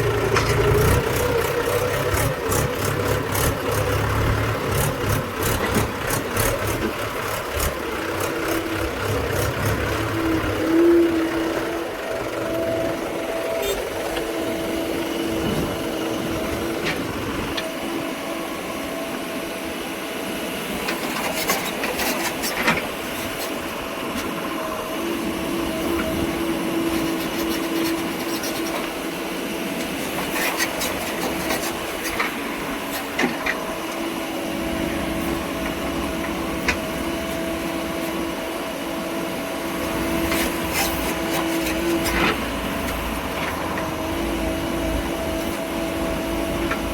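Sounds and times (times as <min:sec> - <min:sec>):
machine engine humming: 0:00.0 - 0:20.9.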